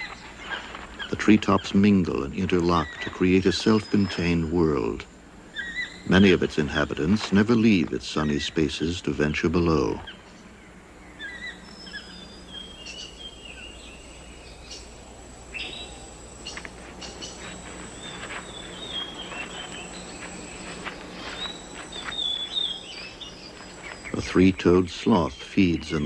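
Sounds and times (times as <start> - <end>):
bird calls and chirps: 0.0 - 26.0
high-pitched insect drone: 11.0 - 26.0.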